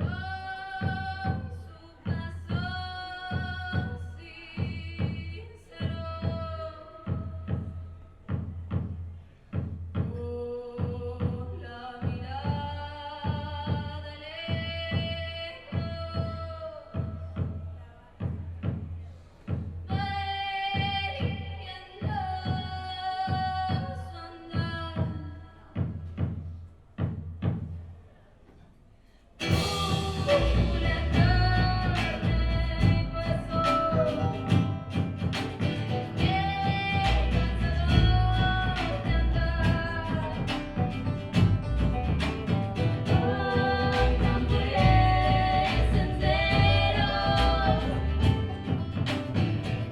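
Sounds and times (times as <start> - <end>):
drums: 0.0 - 49.9
acoustic guitar: 29.4 - 49.9
banjo: 29.4 - 49.9
double bass: 29.4 - 49.9.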